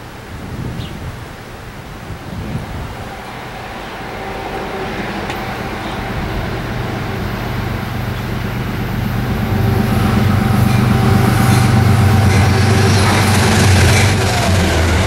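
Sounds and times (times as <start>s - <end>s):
approaching train low drone: 1.8s - 15.0s.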